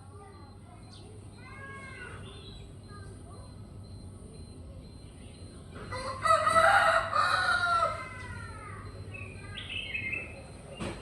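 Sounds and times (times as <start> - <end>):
songbird chirps: 0.0 - 6.2, 7.7 - 11.0
rooster crowing: 5.9 - 8.3.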